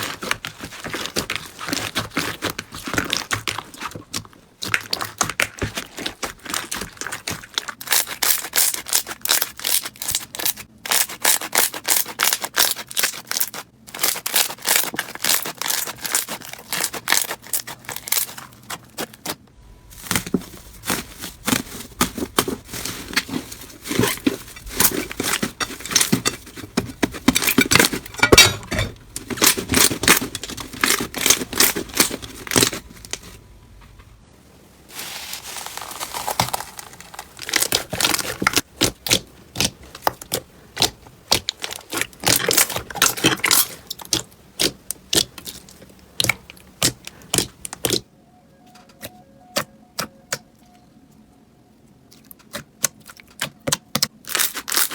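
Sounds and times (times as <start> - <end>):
slime crackling and popping: 0.0 - 19.4, 35.0 - 48.0, 52.1 - 54.9.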